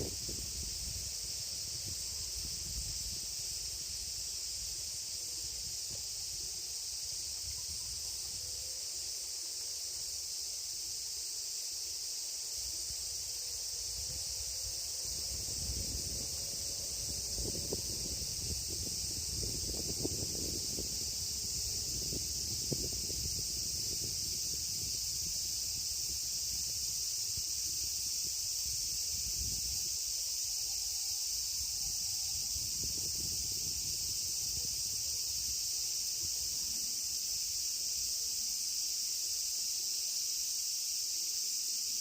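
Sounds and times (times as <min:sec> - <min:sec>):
wind rumble on microphone: 0:00.0 - 0:06.2, 0:13.8 - 0:30.1, 0:31.3 - 0:35.6
insects chorus: 0:00.0 - 0:42.0.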